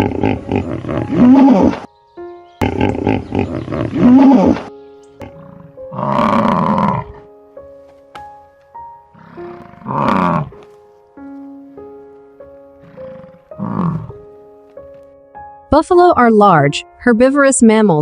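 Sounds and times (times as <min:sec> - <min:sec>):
buffalo bellowing: 0:00.0 - 0:01.9, 0:02.6 - 0:07.4, 0:09.0 - 0:10.7, 0:12.7 - 0:14.4
light background music: 0:00.0 - 0:18.0.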